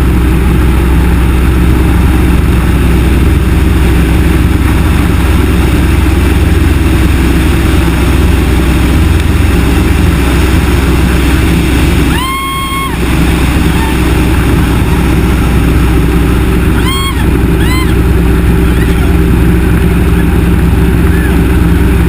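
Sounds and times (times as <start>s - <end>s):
radial aircraft engine running: 0.0s - 22.0s.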